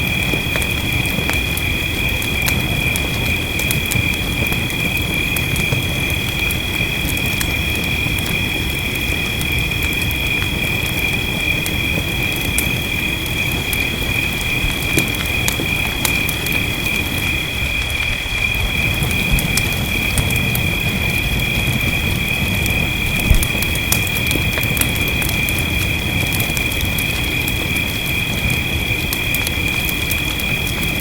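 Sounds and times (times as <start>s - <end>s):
rain hiss: 0.0s - 31.0s
wood fire crackling: 0.0s - 31.0s.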